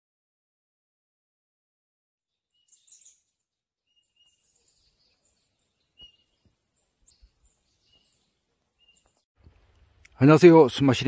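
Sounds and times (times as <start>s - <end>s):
wild birds chirping: 2.3s - 10.1s.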